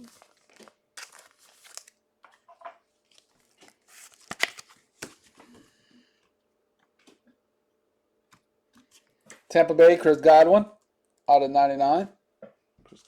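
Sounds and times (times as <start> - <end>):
card wrappers crinkling and tearing: 0.0 - 2.4, 3.0 - 5.3.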